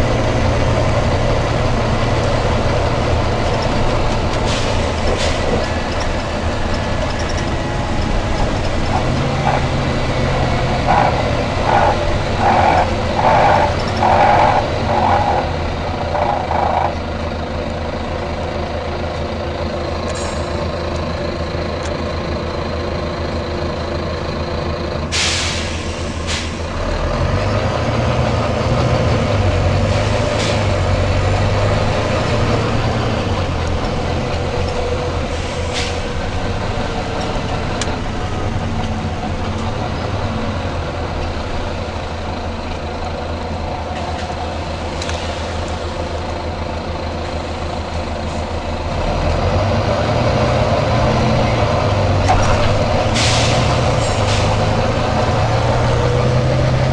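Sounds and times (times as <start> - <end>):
diesel bus engine idling: 0.0 - 56.9
compressed air hisses: 25.1 - 26.6, 53.2 - 53.7.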